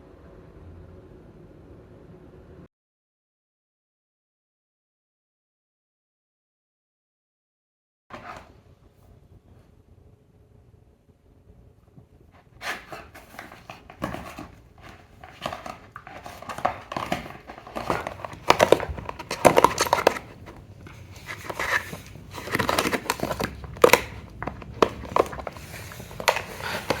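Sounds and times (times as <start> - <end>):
crinkling and rustling: 8.1 - 8.6, 12.0 - 27.0.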